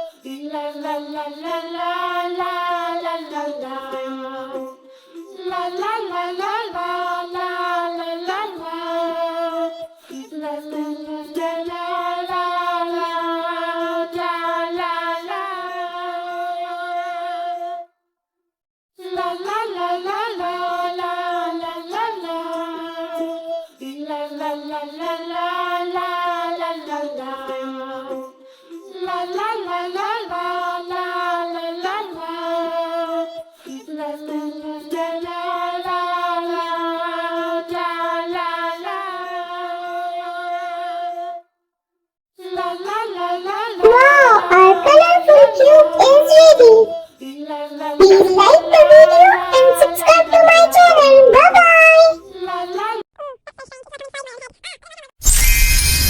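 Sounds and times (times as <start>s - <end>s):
child-like voice singing: 43.8s - 47.0s, 48.0s - 53.0s.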